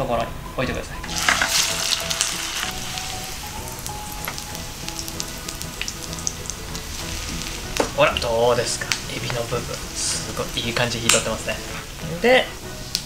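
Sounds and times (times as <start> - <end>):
oil sizzling in frying pan: 1.0 - 13.0.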